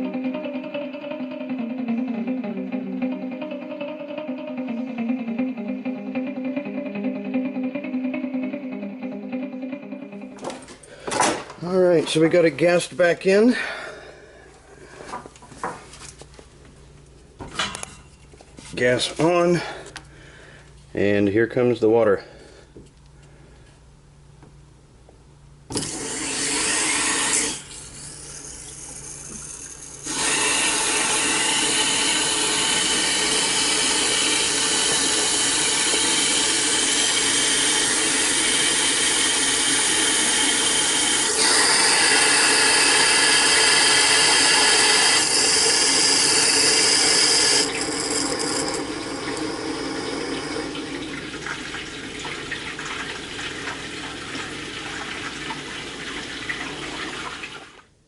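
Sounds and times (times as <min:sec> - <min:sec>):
water rushing into a tank: 0:25.7 - 0:58.0.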